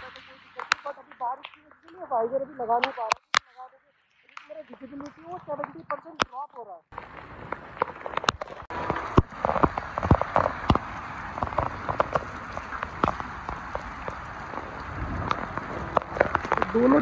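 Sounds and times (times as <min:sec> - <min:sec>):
heavy rain falling: 0:00.0 - 0:03.2, 0:07.0 - 0:17.0.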